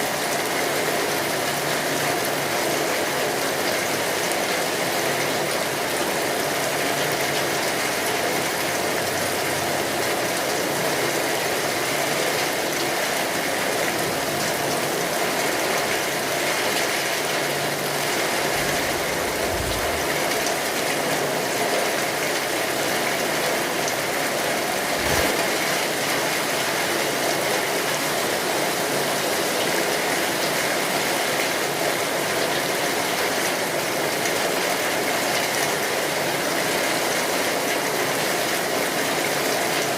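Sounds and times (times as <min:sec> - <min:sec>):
rain pattering on hard surfaces: 0:00.1 - 0:39.9
low thumps: 0:18.8 - 0:20.4.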